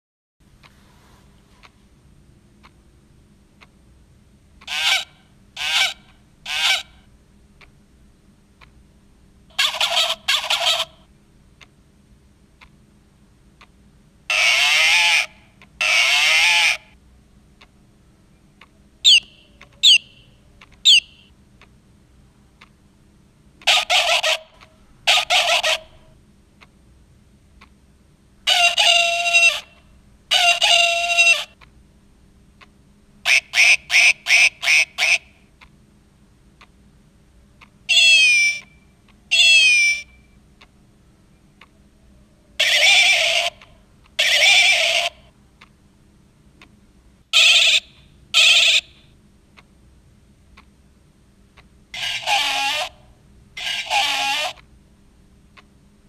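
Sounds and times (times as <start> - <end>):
recorded farm animal calls from speaker: 4.6 - 7.0, 9.5 - 11.0, 14.3 - 17.0, 23.6 - 26.1, 28.4 - 31.6, 42.6 - 45.3, 51.9 - 54.7.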